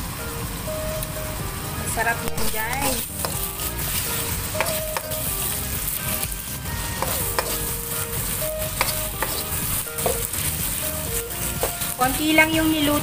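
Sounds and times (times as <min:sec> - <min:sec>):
prawns sizzling in pan: 0:00.0 - 0:13.0
spatula scraping and tapping pan: 0:02.3 - 0:12.1.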